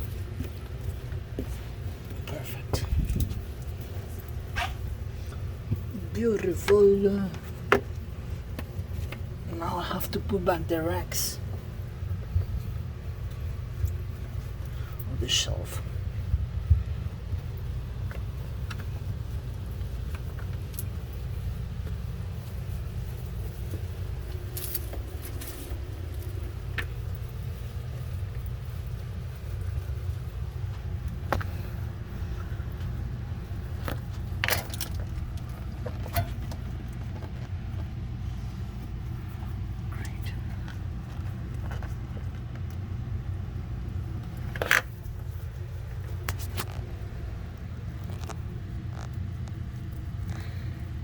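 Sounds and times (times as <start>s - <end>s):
machinery rumbling: 0.0s - 51.0s
steady low hum: 0.0s - 51.0s
refrigerator racks clinking: 33.8s - 37.2s.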